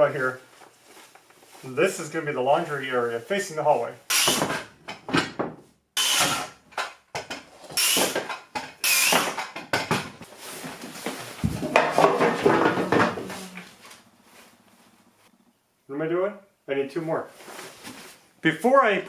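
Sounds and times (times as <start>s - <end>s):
power tool bursts: 4.1s - 4.6s, 6.0s - 6.6s, 7.8s - 9.4s.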